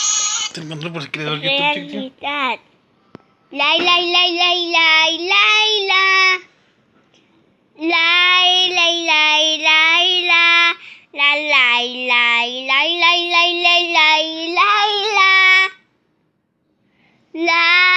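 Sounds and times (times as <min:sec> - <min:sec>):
high voice singing unaccompanied: 0:01.4 - 0:02.5, 0:07.8 - 0:15.8.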